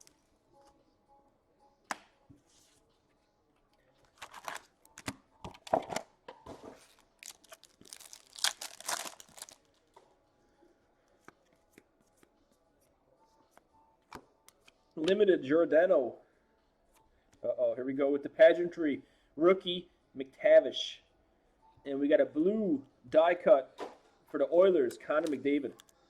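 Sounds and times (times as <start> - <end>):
wrapper tearing and crinkling: 7.0 - 9.7.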